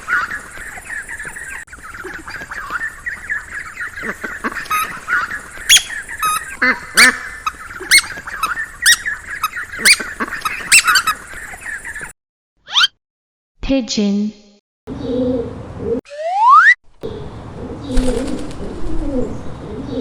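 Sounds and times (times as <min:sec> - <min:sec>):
ducklings peeping: 0:00.0 - 0:12.1.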